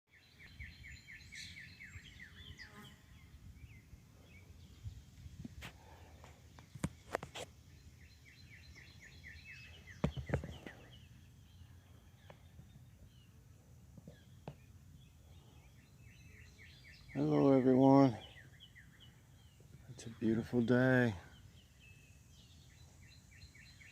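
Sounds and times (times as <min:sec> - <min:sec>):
songbird singing: 0:00.1 - 0:23.9.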